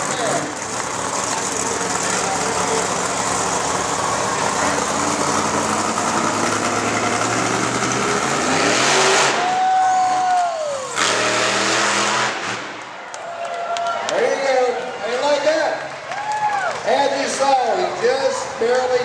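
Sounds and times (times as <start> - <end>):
loud truck engine running: 0.0 - 13.0.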